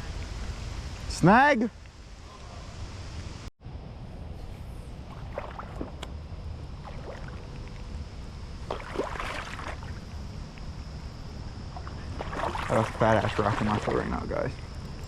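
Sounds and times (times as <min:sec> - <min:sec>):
creek water flowing: 0:05.0 - 0:15.0.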